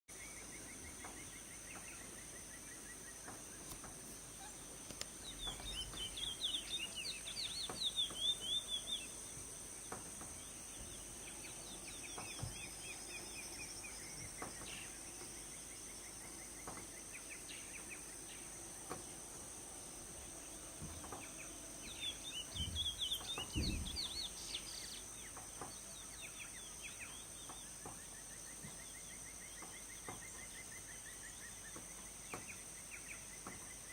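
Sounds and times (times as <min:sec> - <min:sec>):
high insect drone: 0:00.2 - 0:33.9
finch singing: 0:00.4 - 0:09.4, 0:20.9 - 0:31.7.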